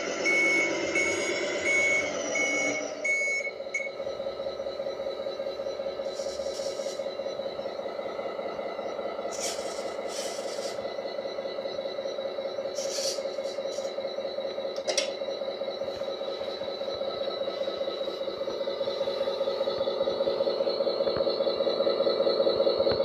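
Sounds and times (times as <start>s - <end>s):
toy truck pulsing drone: 0.0s - 23.0s
short hisses: 9.3s - 10.8s, 12.8s - 13.9s.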